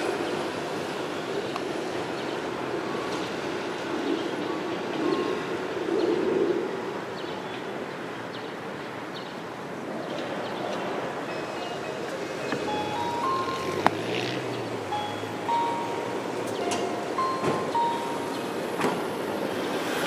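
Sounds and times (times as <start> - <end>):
street traffic: 0.0 - 20.0
electric train hum: 10.8 - 20.0.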